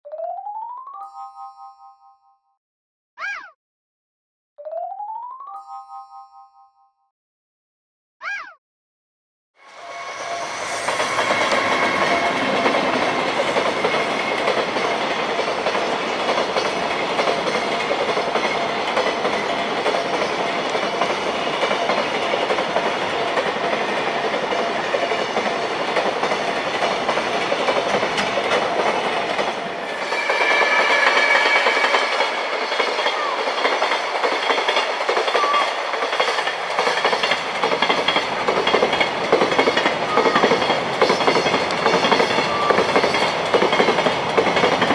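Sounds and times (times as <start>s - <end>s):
train wheel and rail noise: 9.6s - 44.9s
wagons clacking over rail joints: 31.2s - 44.9s.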